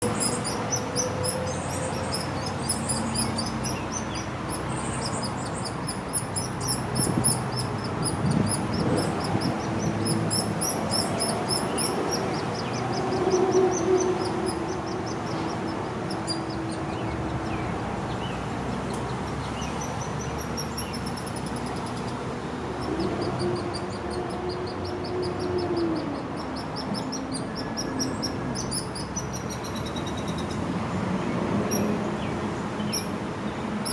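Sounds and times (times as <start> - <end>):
woodpecker nestling chattering chirps: 0.0 - 13.4.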